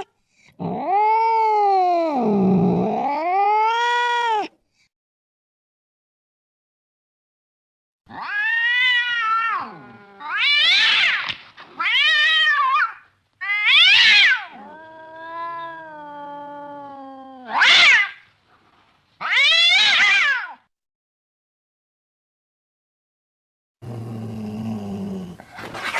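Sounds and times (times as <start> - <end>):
cat moaning call: 0.6 - 4.6, 8.1 - 10.8, 13.5 - 18.0
cat yowling: 2.8 - 4.5, 8.1 - 18.2, 19.2 - 20.6.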